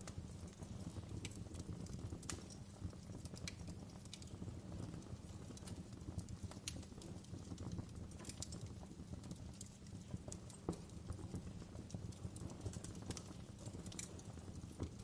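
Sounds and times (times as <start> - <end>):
burning logs crackling and popping: 0.0 - 15.0
low rumble of flames: 0.0 - 15.0.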